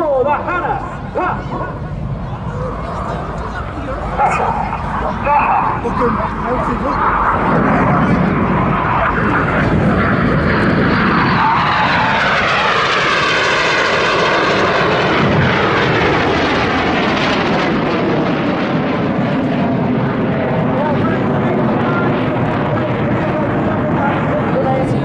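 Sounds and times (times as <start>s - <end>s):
jet aircraft roar: 0.0s - 25.0s.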